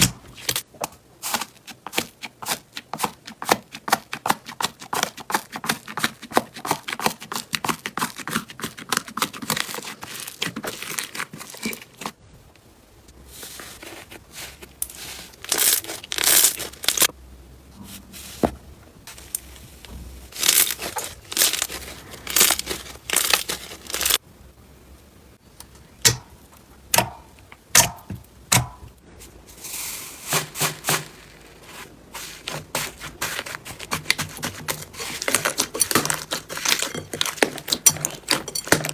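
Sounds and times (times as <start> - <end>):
wet squishes of slime: 1.2 - 12.2, 13.5 - 17.1, 18.4 - 24.2
slime crackling and popping: 14.8 - 17.1, 20.3 - 24.2.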